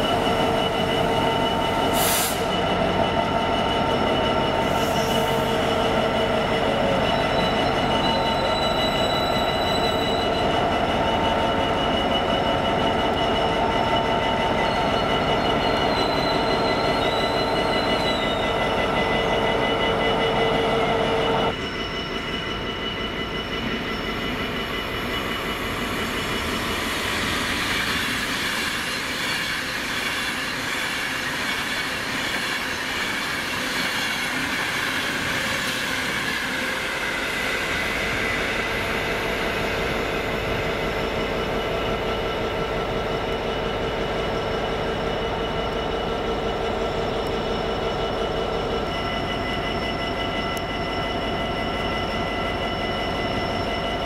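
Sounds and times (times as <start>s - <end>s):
train wheel and rail noise: 0.0s - 54.0s.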